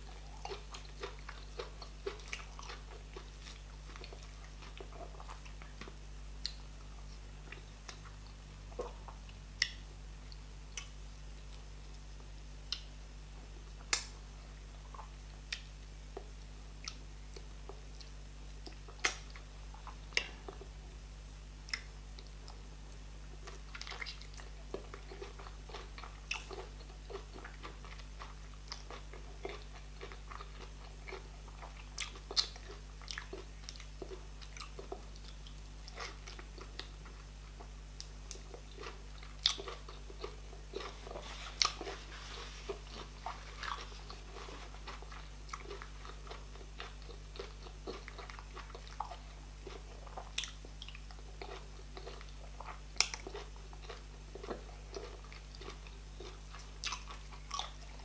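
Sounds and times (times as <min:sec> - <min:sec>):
person chewing and biting: 0:00.0 - 0:09.8, 0:23.4 - 0:58.0.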